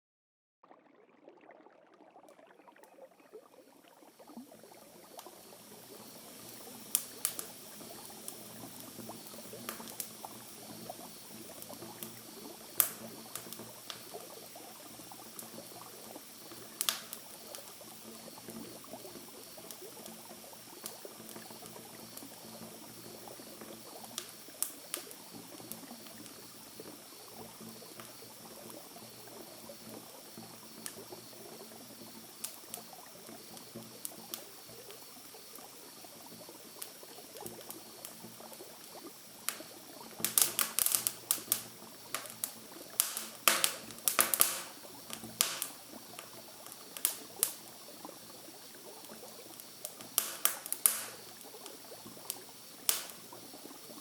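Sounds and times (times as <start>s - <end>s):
campfire crackling: 3.4s - 54.0s
burning wood popping: 5.1s - 26.5s, 39.3s - 47.7s, 48.9s - 53.4s.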